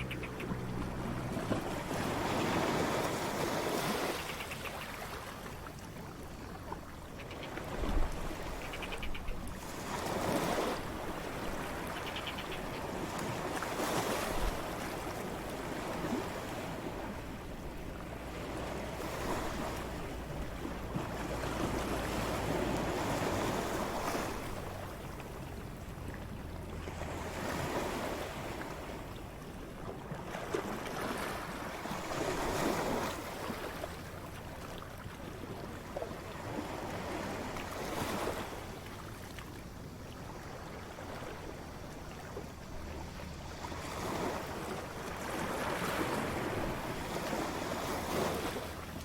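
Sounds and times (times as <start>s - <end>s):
ocean waves crashing on shore: 0.0s - 49.0s.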